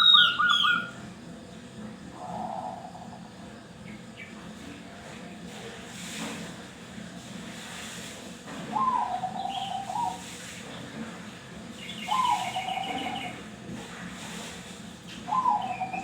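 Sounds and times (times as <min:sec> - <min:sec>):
dove cooing: 0:00.0 - 0:00.9, 0:02.2 - 0:03.4, 0:08.7 - 0:10.4, 0:12.0 - 0:13.5, 0:15.2 - 0:16.0
faint high chirping: 0:00.0 - 0:00.9.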